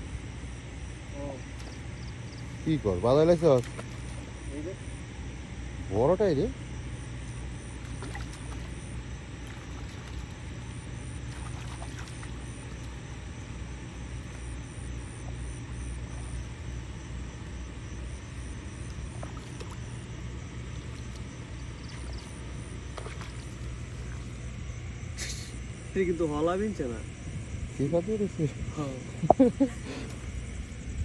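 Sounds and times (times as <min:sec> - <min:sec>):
low engine drone: 0:00.0 - 0:31.0
hiss: 0:25.2 - 0:25.6.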